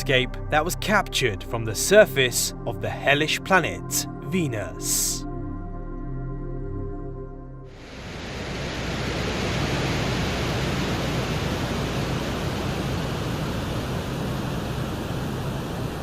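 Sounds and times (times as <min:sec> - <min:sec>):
steady hiss: 0:07.7 - 0:16.0.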